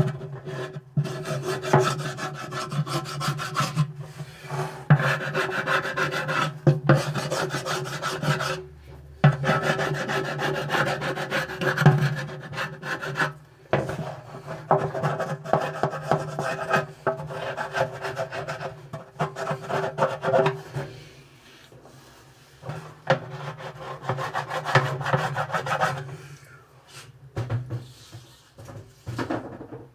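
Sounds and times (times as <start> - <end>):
rapid rasping scraping strokes: 0.5 - 8.6, 9.2 - 13.4.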